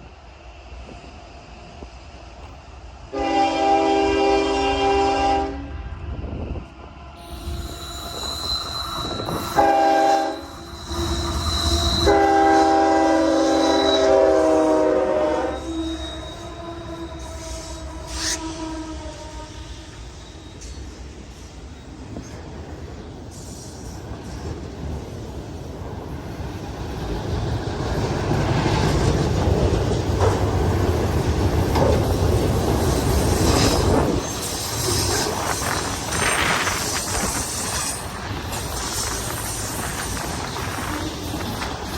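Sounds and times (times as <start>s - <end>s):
train rumbling past: 0.0s - 41.9s
locomotive air horn: 3.1s - 5.8s, 7.2s - 19.8s.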